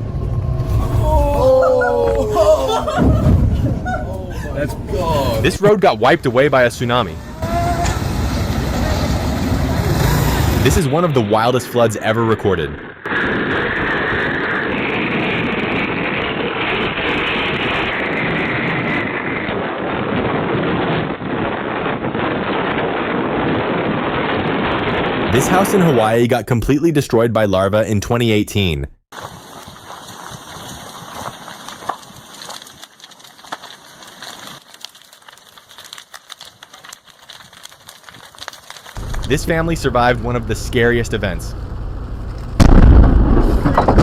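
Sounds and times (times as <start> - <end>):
lava crust crackling and crunching: 0.0 - 26.2, 29.1 - 44.0
floodwater rushing: 0.6 - 6.2.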